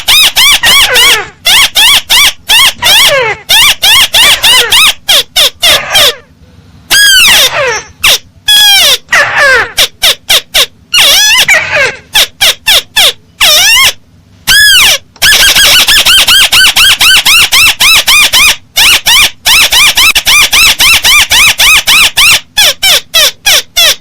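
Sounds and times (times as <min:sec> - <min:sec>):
bird squeaky calls: 0:00.0 - 0:06.2, 0:06.9 - 0:24.0.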